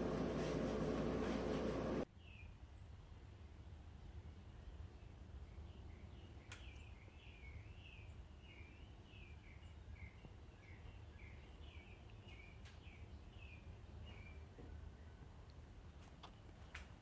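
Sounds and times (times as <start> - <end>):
low hum: 0.0 - 2.1.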